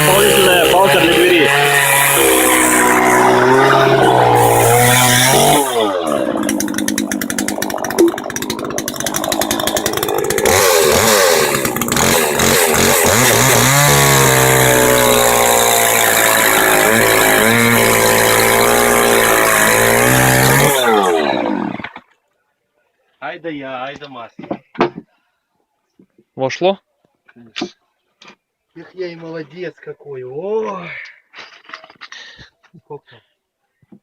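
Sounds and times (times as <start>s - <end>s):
chainsaw cutting wood: 0.0s - 22.1s.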